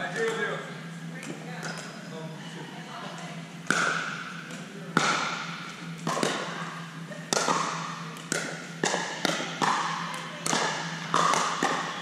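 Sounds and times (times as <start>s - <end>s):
paddles striking plastic ball: 7.3s - 12.0s.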